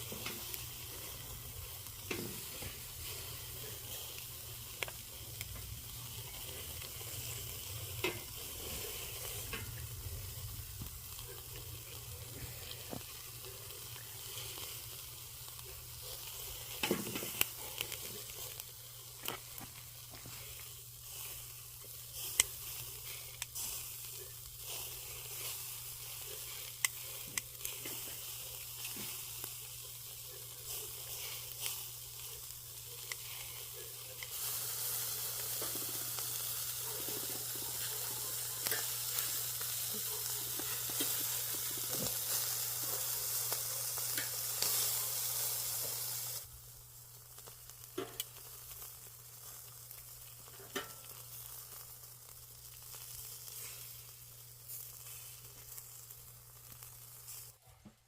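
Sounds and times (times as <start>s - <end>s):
chicken sizzling in hot oil: 0.0s - 57.6s.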